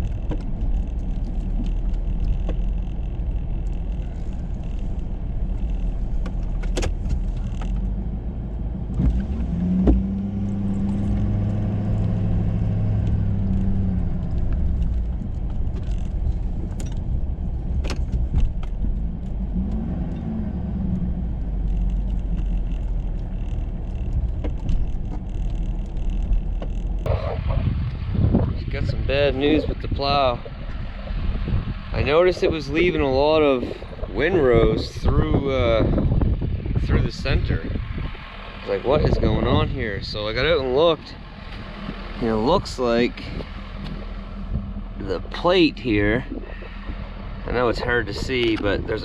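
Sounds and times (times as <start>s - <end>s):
pitched hum: 0.0s - 49.0s
truck engine rumbling: 0.0s - 49.0s.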